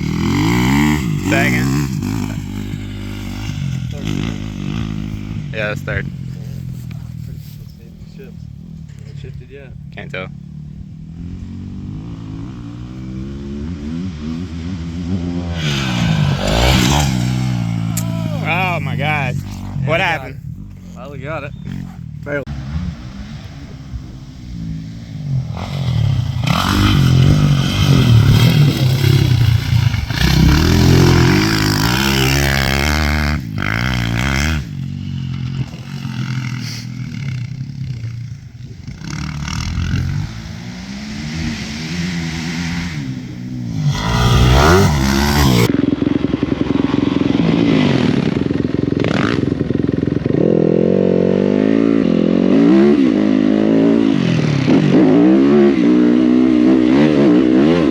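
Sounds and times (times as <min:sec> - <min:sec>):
dirt bike engine revving: 0:00.0 - 0:57.9
wind noise: 0:10.8 - 0:36.1.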